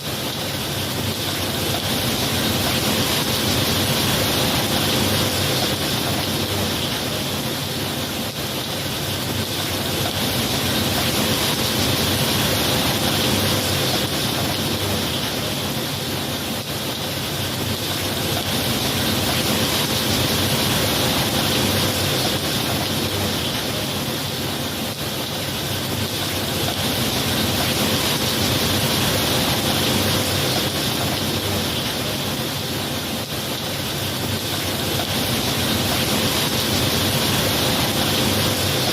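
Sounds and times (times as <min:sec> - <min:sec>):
heavy rain hissing: 0:00.0 - 0:38.9.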